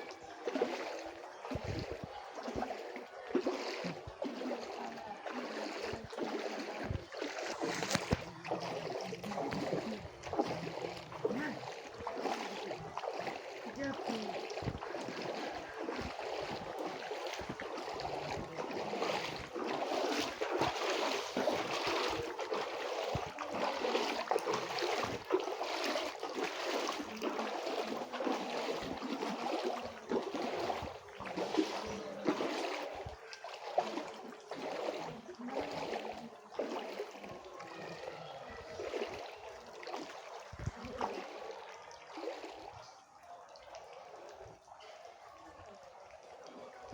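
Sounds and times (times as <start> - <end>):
rain pattering and splashing: 5.4 - 37.2.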